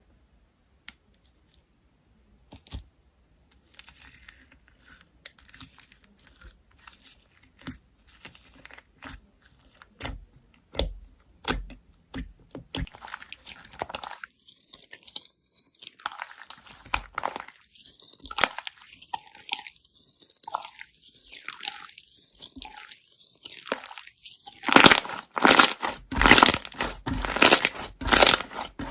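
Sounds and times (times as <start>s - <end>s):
packaging crinkling and rustling: 23.7s - 28.9s.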